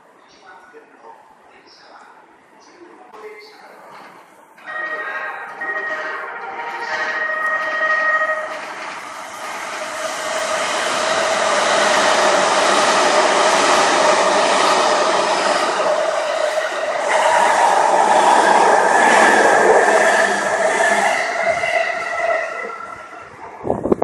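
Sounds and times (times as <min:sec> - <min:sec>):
train wheels rushing on rail: 0:05.5 - 0:24.0.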